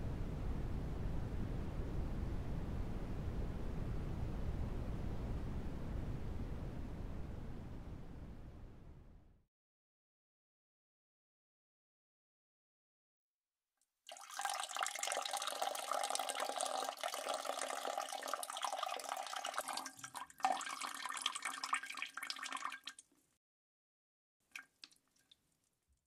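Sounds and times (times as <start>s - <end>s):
urine splashing into water: 14.1s - 23.0s, 24.5s - 25.7s
water drips: 14.1s - 23.2s, 24.5s - 26.0s.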